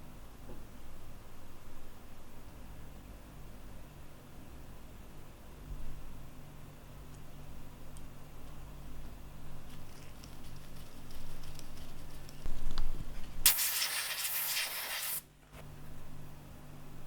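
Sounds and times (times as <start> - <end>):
loud hissing spray: 13.4 - 15.2.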